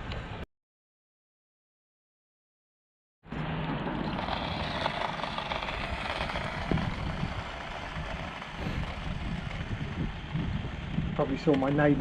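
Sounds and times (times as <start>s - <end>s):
outdoor noise: 0.0s - 0.5s, 3.2s - 12.0s
car engine running: 3.4s - 11.0s.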